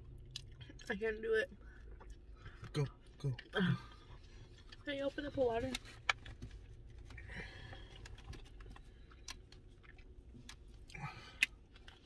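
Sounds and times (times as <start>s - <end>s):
chewing food: 0.0s - 4.9s, 7.8s - 12.0s.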